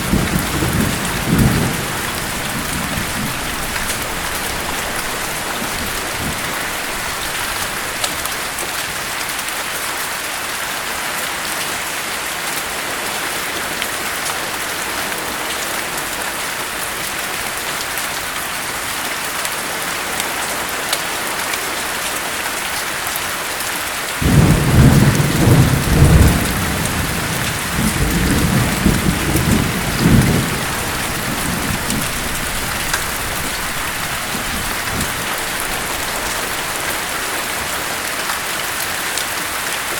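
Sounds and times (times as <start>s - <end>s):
thunder rumbling: 0.0s - 8.0s, 24.2s - 37.7s
heavy rain: 0.0s - 39.9s.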